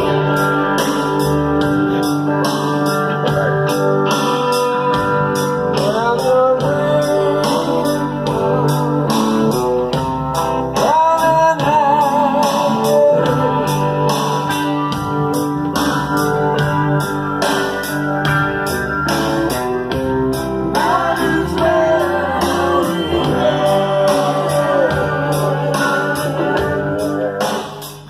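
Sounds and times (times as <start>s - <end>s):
guitar strumming: 0.0s - 28.0s
person singing: 5.7s - 9.6s, 10.7s - 14.6s, 20.6s - 28.0s.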